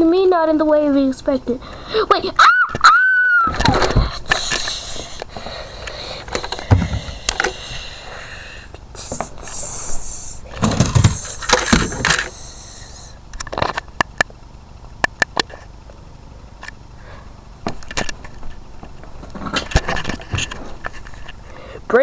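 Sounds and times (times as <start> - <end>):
high hissing rush: 4.2 - 13.2
plastic toys clacking and thumping: 10.6 - 12.3.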